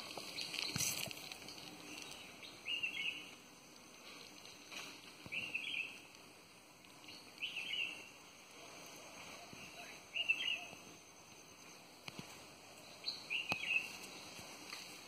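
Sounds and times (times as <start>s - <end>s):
faint outdoor background: 0.0s - 15.0s
bird calling: 1.9s - 3.3s, 5.2s - 6.0s, 7.0s - 8.2s, 9.2s - 11.0s, 12.8s - 14.3s.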